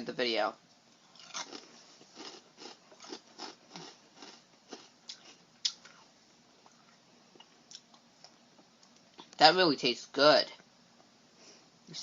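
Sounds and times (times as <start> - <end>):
person chewing crunchy cereal: 1.0 - 8.0.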